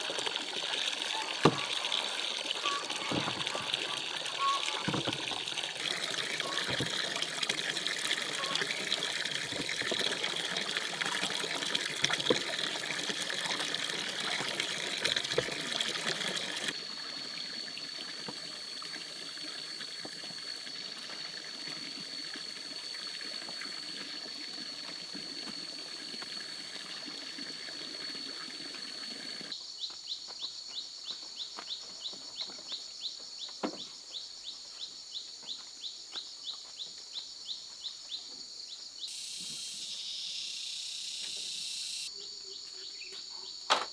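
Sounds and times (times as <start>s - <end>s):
running water: 0.0s - 29.5s, 39.1s - 42.1s
insects chirping: 0.0s - 43.9s.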